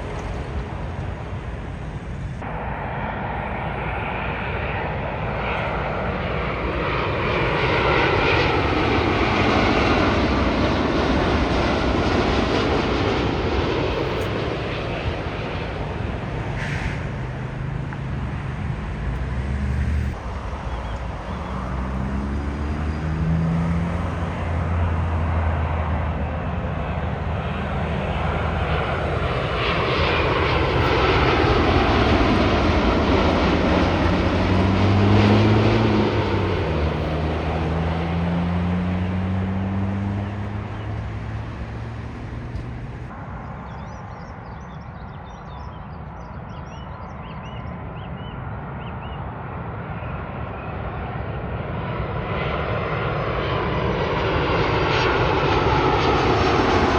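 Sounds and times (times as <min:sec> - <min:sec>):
jet engines passing overhead: 0:00.0 - 0:56.9.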